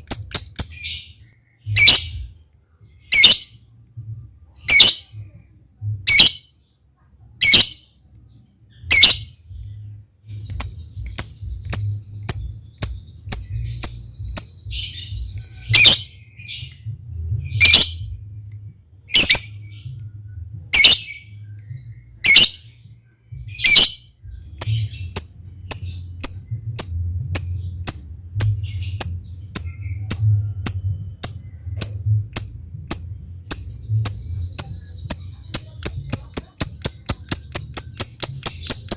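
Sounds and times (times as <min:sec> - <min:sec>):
sharp ticking chirps: 0:00.0 - 0:02.2, 0:08.8 - 0:16.8, 0:23.6 - 0:38.9
faint low hum: 0:00.0 - 0:38.9.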